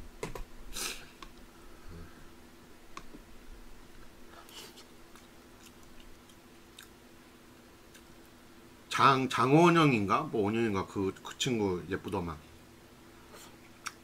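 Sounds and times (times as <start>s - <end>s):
faint steady hum: 0.0s - 14.0s
man chewing food: 3.9s - 8.4s.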